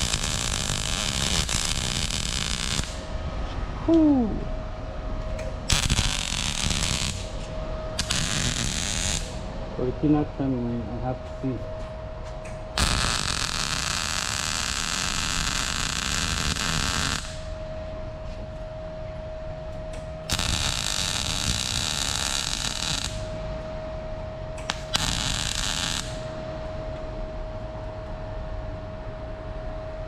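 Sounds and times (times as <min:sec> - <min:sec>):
arc welding crackling hiss: 0:00.0 - 0:03.1, 0:05.5 - 0:09.5, 0:12.5 - 0:17.6, 0:20.2 - 0:23.4, 0:24.6 - 0:26.4
faint steady whine: 0:00.0 - 0:30.0.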